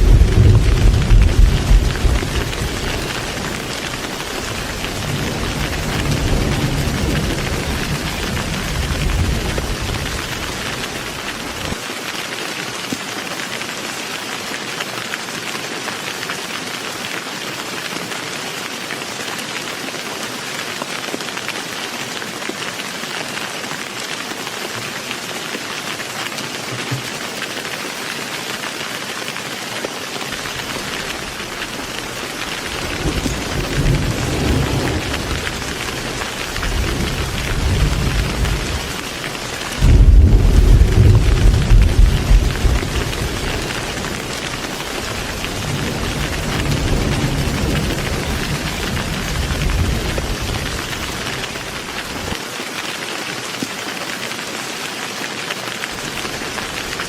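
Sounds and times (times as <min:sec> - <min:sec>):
thunder rumbling: 0:00.0 - 0:11.8, 0:30.4 - 0:52.3
heavy rain: 0:00.0 - 0:57.0.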